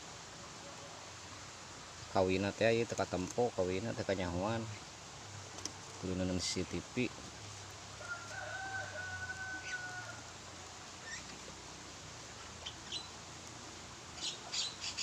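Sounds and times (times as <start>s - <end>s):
lovebirds chirping: 12.5s - 13.2s, 14.2s - 15.0s.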